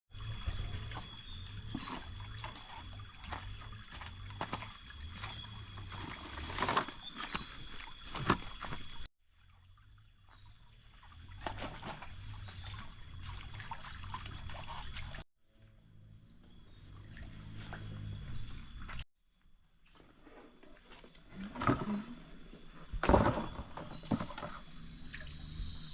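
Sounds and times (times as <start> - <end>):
high-pitched insect drone: 0.2 - 9.1.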